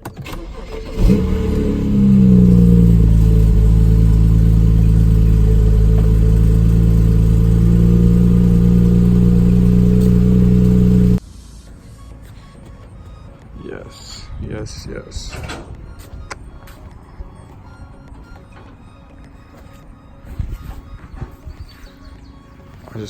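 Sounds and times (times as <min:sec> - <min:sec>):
car engine idling after start-up: 0:00.2 - 0:11.2.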